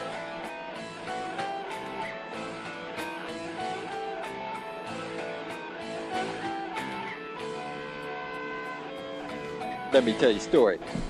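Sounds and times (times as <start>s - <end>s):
guitar music: 0.0s - 11.0s.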